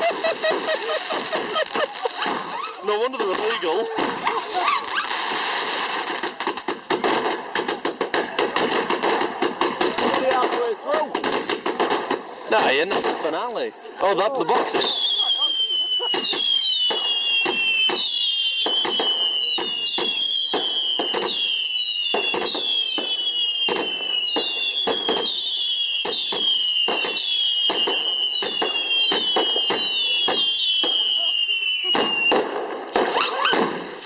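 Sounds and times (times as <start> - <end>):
firework whistles: 0.0 - 10.2, 14.5 - 34.0
firework cracks and bangs: 0.0 - 34.0.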